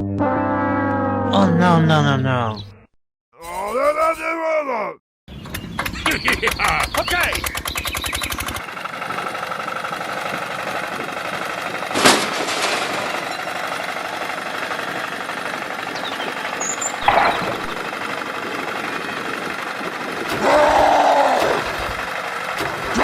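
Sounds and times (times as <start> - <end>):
short clatter: 11.8 - 13.8, 17.0 - 17.8.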